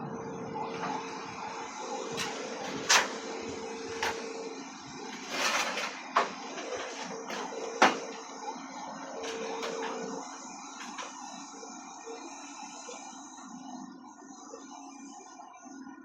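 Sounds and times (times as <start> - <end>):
steady hum: 0.0 - 16.0
scraping noise: 5.1 - 7.4.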